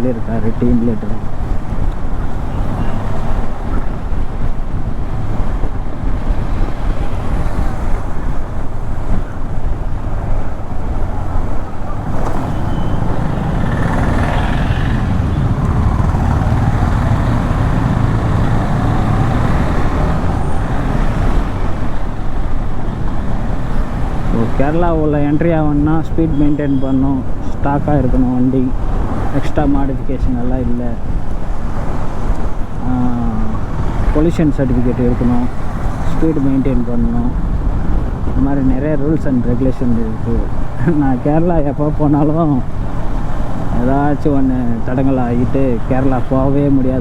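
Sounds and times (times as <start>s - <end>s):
wind noise: 0.0s - 47.0s
motorcycle engine: 11.0s - 24.7s.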